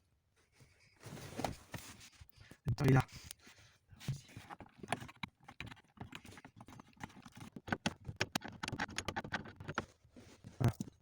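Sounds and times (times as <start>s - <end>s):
tools clicking and knocking on car parts: 4.2s - 10.0s.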